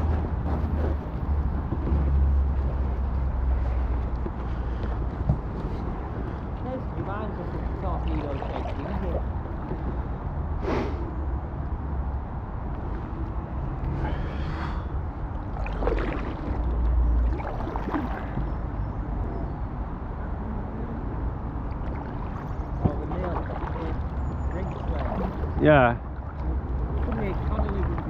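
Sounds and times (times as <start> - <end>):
paddles splashing in water: 0.6 - 10.2, 13.8 - 18.8, 21.5 - 28.0.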